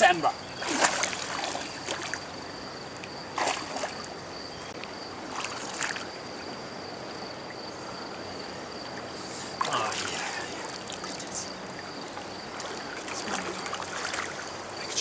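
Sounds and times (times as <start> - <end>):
river water flowing: 0.0 - 15.0
splashes in water: 0.6 - 2.3, 3.4 - 4.1, 12.5 - 14.6.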